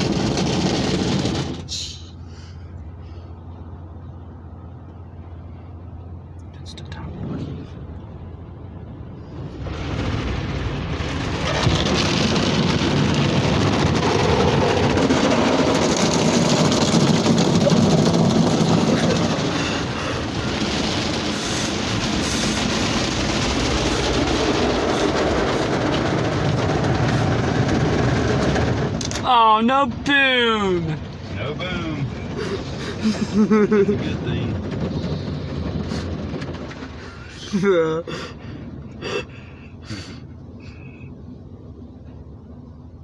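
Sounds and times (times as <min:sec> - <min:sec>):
car wash brushes scrubbing: 0:09.3 - 0:29.0.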